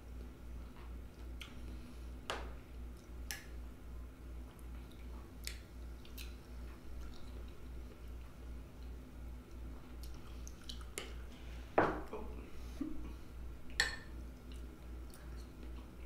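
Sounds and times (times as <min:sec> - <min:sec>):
chewing soft wet fruit: 0:00.1 - 0:02.1, 0:04.2 - 0:11.4, 0:12.4 - 0:16.0.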